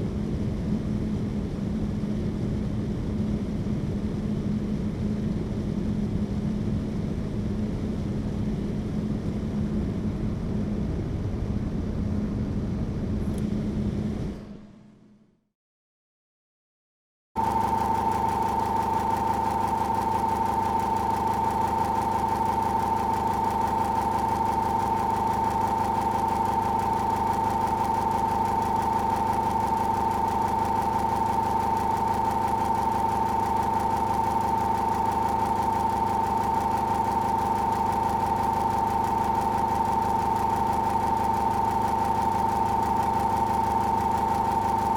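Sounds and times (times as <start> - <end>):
electric fan whining: 17.4 - 44.9.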